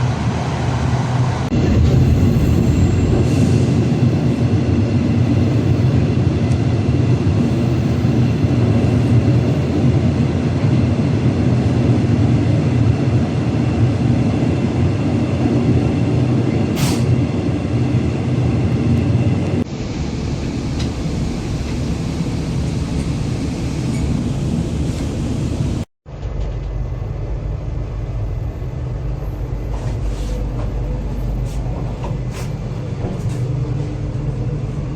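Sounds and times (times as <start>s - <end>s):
train rumbling: 0.0s - 34.9s.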